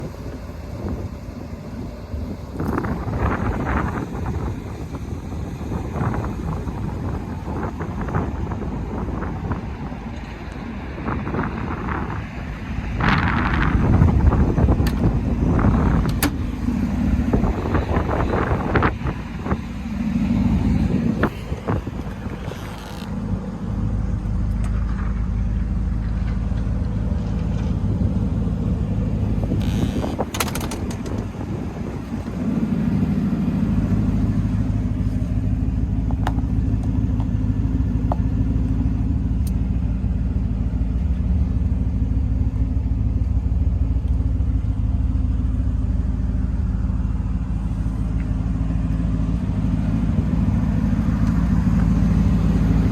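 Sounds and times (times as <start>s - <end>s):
car engine running: 0.0s - 52.9s
knocks and clicks: 29.6s - 31.4s.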